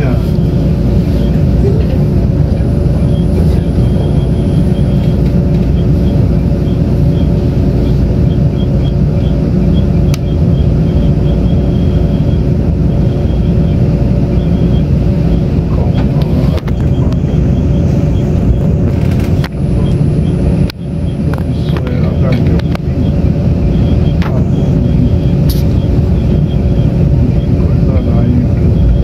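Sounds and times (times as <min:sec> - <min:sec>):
steady hum: 0:00.0 - 0:29.0
train wheels rumbling on track: 0:00.0 - 0:29.0
sharp click: 0:25.5 - 0:25.7.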